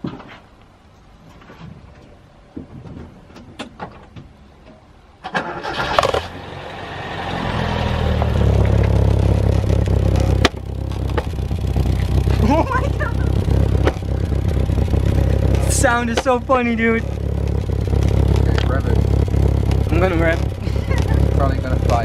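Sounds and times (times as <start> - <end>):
car engine cranking and starting: 5.2 - 22.0
low exhaust rumble: 6.2 - 22.0.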